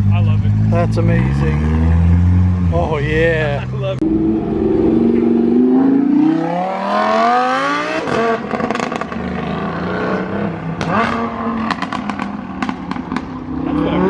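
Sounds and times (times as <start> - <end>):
sports car accelerating: 0.0 - 14.0
exhaust pops and crackles: 10.8 - 13.4.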